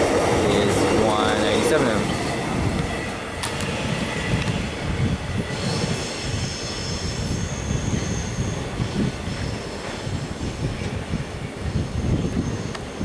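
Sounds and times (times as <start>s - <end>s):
train wheels rumbling on rails: 0.0s - 13.0s
high wheel squeal: 5.4s - 10.2s.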